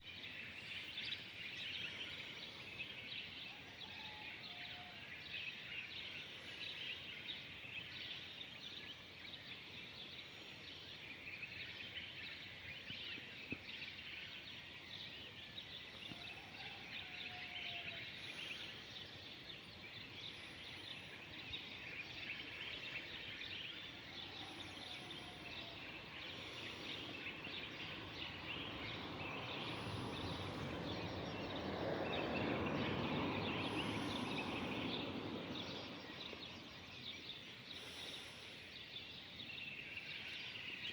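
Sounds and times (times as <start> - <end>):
small birds chirping: 0.0 - 40.9
low gliding bird whistles: 20.3 - 36.7.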